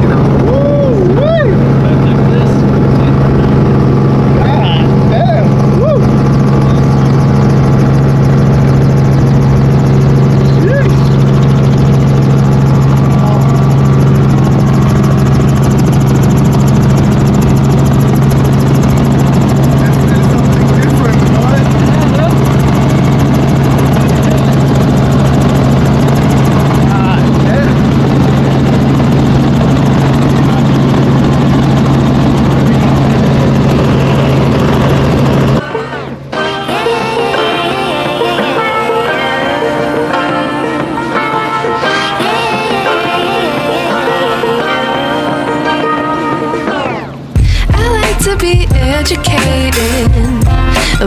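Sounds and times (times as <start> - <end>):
helicopter engine and rotor drone: 0.0 - 48.8.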